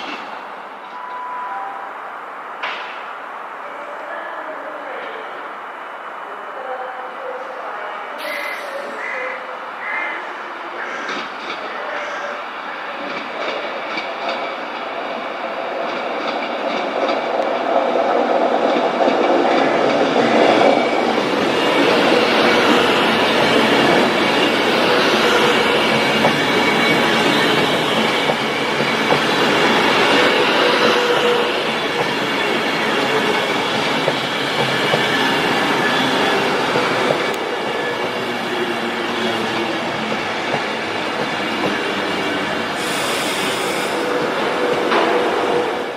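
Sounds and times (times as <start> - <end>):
train wheels clicking over rails: 13.0 - 45.9
train wheel squeal: 21.4 - 45.9.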